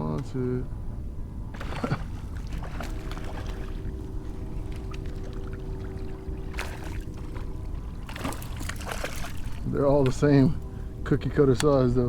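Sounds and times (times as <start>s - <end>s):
faint steady hum: 0.0s - 12.0s
water lapping against boat: 1.4s - 11.0s.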